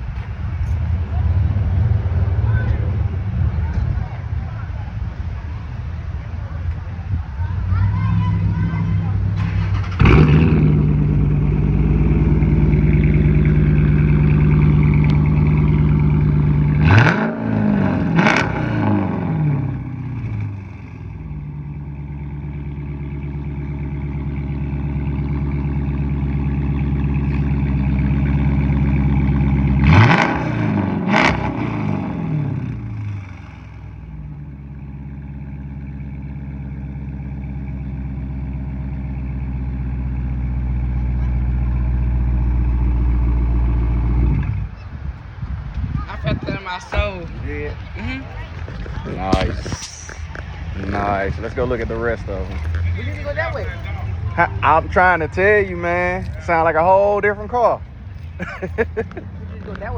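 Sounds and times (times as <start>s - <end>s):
car engine idling: 0.0s - 59.9s
engine throttle blips: 0.0s - 59.9s.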